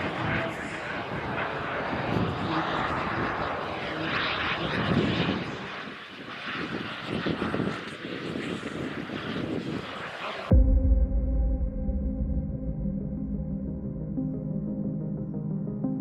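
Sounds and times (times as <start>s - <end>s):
model jet turbine engine: 0.0s - 10.5s.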